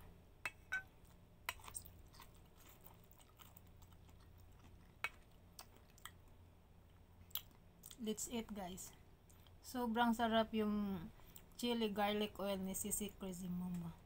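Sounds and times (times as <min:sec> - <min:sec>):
chewing with soft crunches: 0:00.9 - 0:08.0, 0:08.9 - 0:09.6.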